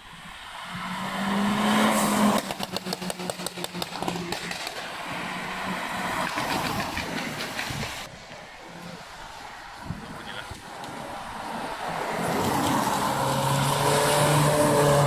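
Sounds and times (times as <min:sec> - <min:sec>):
car engine accelerating: 0:00.2 - 0:07.5, 0:11.4 - 0:15.0
exhaust pops and crackles: 0:02.3 - 0:05.0.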